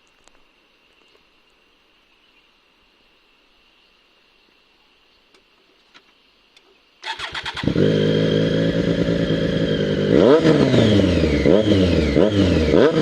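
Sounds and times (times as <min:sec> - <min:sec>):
motorcycle starter cranking: 0:07.0 - 0:09.7
motorcycle engine idling: 0:07.0 - 0:12.7.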